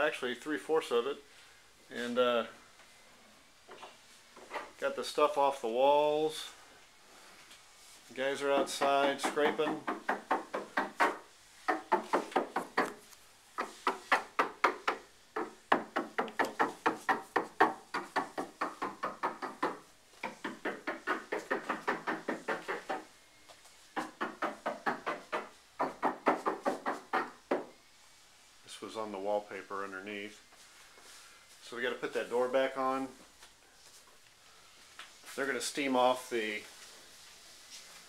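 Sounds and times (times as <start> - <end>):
paint scraper strokes on siding: 7.8 - 13.0.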